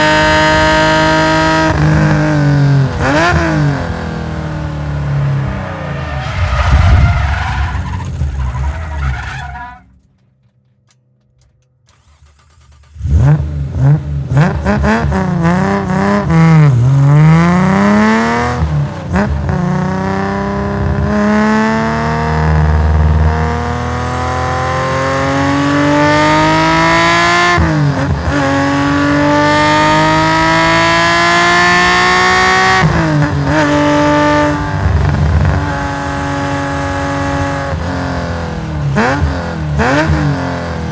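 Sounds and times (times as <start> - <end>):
racing car engine revving: 0.0 - 9.7, 12.9 - 40.9.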